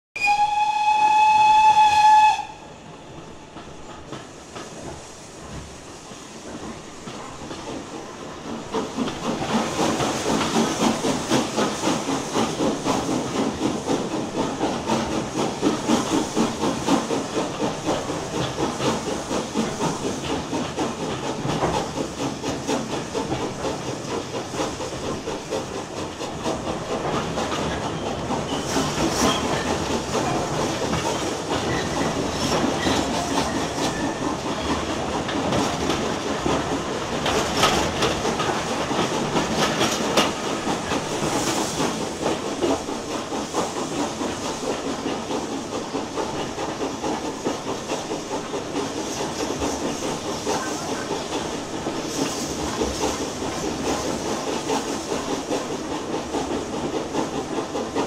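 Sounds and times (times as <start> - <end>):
train horn: 0.2 - 2.7
train wheels clattering over rail joints: 1.7 - 58.0.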